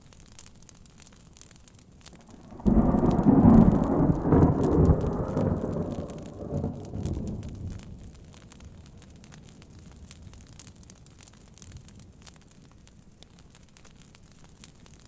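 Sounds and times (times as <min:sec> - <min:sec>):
crackling: 0:00.0 - 0:15.0
faint rain: 0:00.0 - 0:15.0
thunder rolling: 0:02.2 - 0:08.5.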